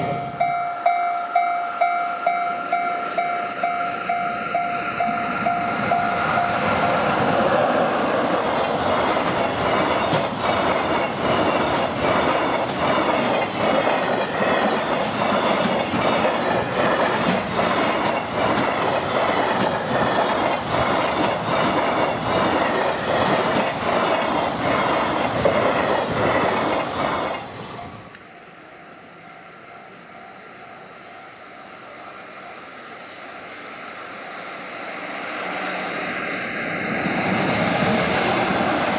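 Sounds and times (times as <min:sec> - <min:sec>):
train wheels clickety-clack: 0:02.3 - 0:27.7, 0:36.4 - 0:38.9.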